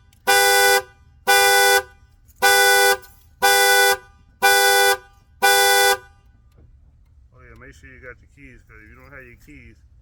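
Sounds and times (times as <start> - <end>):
truck horn alarm honking: 0.0 - 6.3.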